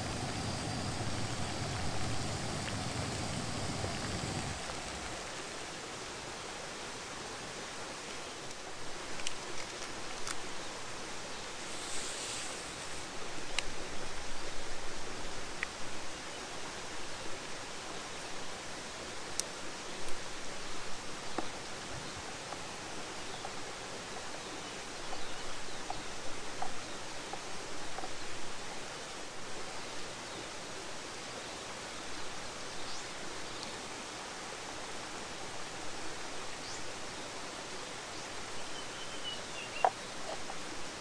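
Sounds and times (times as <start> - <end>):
stream and waterfalls rushing: 0.0 - 8.0.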